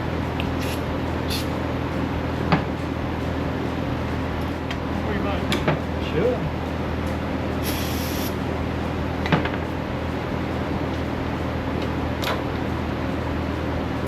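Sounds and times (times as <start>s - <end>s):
machine humming: 0.0s - 14.0s
short burst of hiss: 7.6s - 8.4s.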